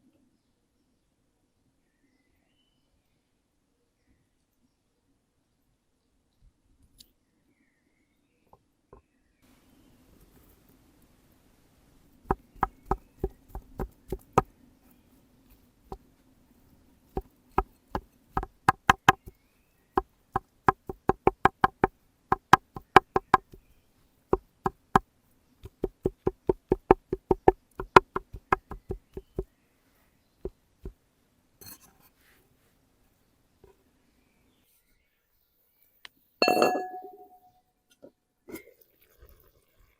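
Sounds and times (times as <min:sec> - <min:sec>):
knife chopping on cutting board: 0:12.3 - 0:14.5, 0:17.2 - 0:19.3, 0:20.7 - 0:23.5, 0:25.6 - 0:29.4.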